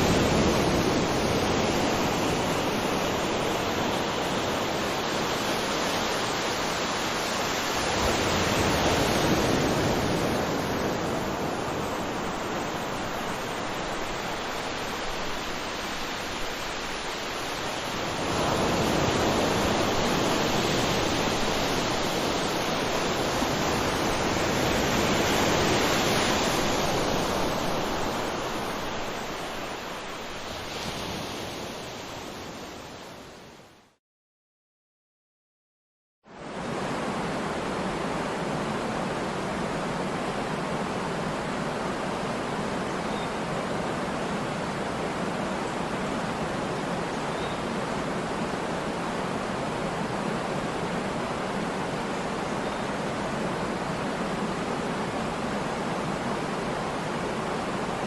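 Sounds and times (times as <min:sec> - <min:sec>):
rush of falling water: 0:00.0 - 0:33.2.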